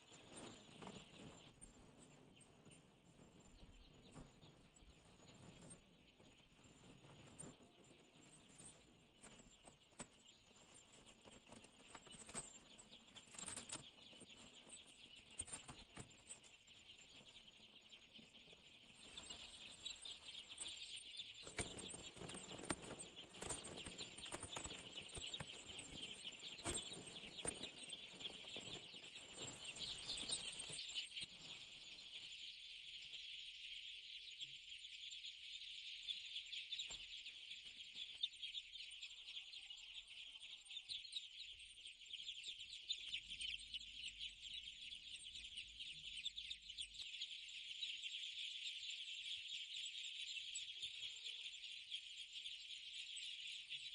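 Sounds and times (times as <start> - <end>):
chicks scratching and pecking: 0.0 - 33.1
chicks peeping: 0.0 - 53.9.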